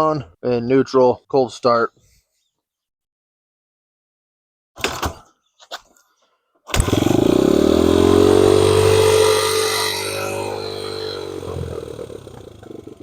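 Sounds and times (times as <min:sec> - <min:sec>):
motorcycle engine starting and idling: 0:06.7 - 0:13.0.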